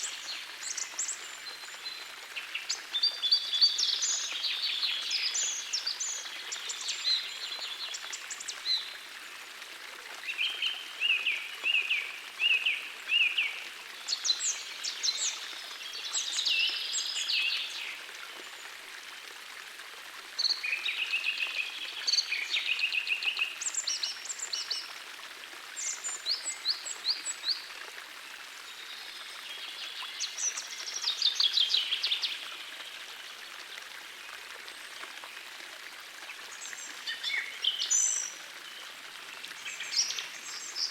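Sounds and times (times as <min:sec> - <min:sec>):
songbirds singing: 0:36.4 - 0:40.9.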